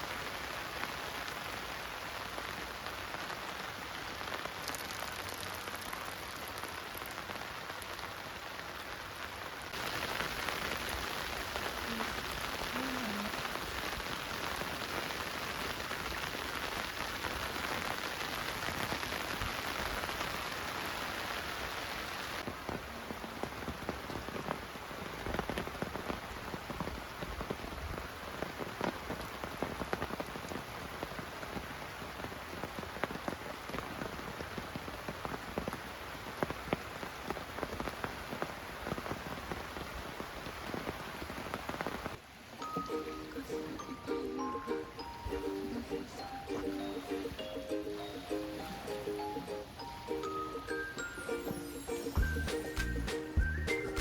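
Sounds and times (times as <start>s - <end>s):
rain falling steadily: 0.0s - 54.0s
raindrops tapping: 3.1s - 8.9s, 40.6s - 54.0s.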